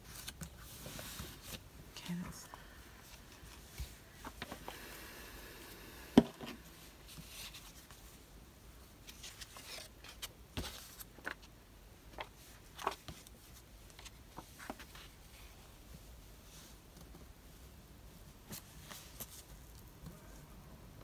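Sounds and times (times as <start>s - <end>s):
paper rustling: 9.0s - 11.5s, 12.1s - 15.5s.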